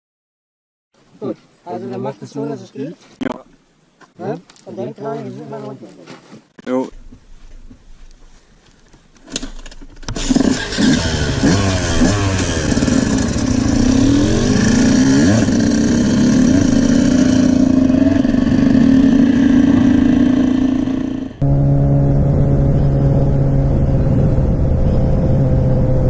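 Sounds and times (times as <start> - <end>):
motorcycle engine accelerating: 9.8 - 26.0.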